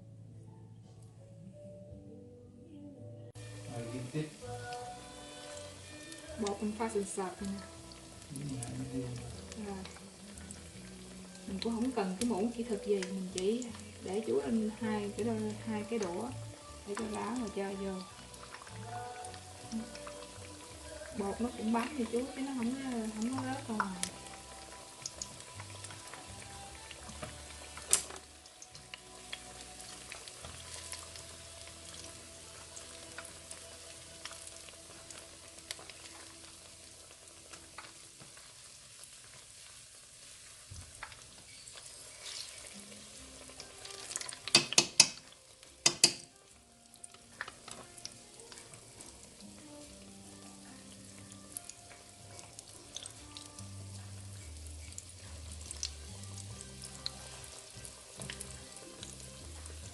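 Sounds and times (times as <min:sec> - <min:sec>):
food sizzling in hot oil: 0:03.4 - 0:59.9
sharp clicks and taps: 0:44.5 - 0:45.2, 0:45.8 - 0:46.3.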